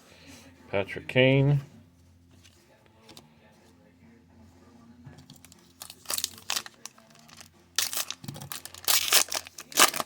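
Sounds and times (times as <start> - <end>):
card pack wrapper crinkling: 5.8 - 10.0.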